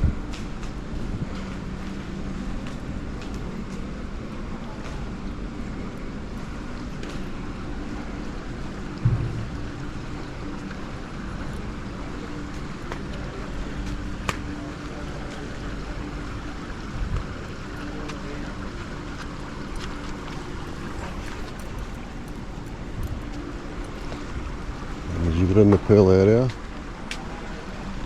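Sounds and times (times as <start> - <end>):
faint low hum: 1.0 - 25.5
steady rushing noise: 3.9 - 12.4.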